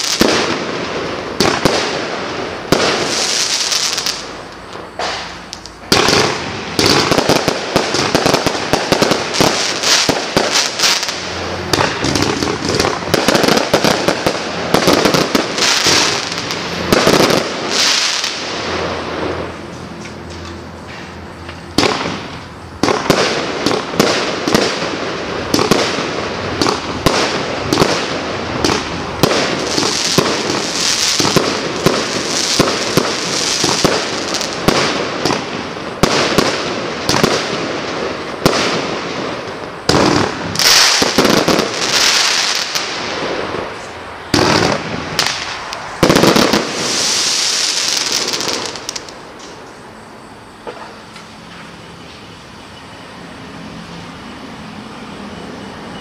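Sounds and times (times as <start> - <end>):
firework barrage launches and bursts: 0.0 - 52.4.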